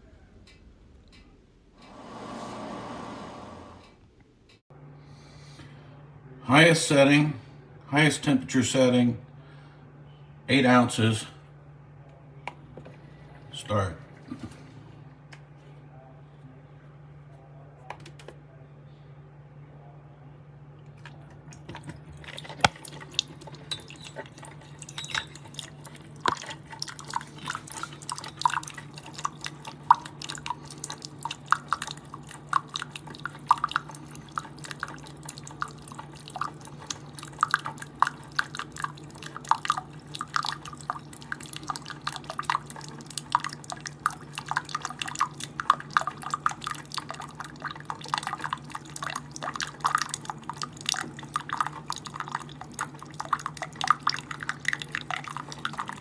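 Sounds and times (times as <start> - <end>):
coffee machine humming: 1.8 - 4.1
coffee dripping into cup: 21.0 - 56.0.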